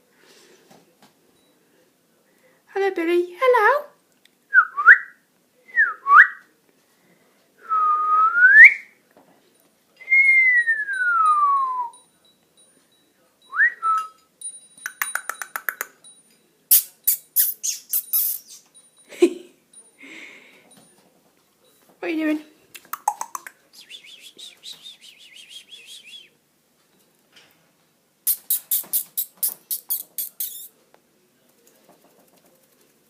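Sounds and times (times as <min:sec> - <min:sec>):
parrot beak clicks: 0:14.8 - 0:16.0, 0:22.7 - 0:23.6, 0:28.3 - 0:30.7.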